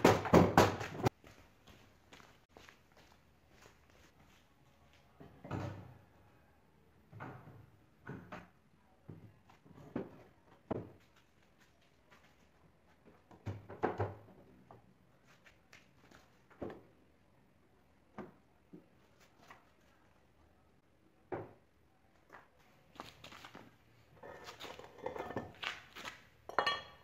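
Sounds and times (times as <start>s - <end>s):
wooden boards knocking together: 0.0s - 1.1s.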